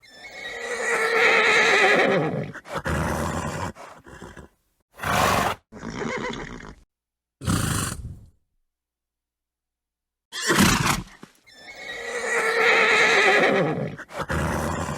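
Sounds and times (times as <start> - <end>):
horse whinnying: 0.0 - 6.8, 10.3 - 14.9
horse snorting: 2.4 - 6.8, 7.4 - 8.4, 13.2 - 14.9.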